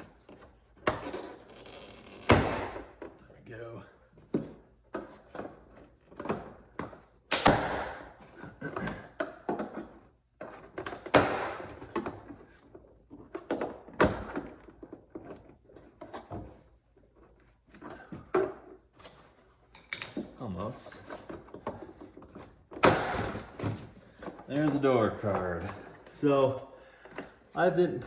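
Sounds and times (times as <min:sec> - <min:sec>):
sharp plastic snaps: 0:07.2 - 0:08.1.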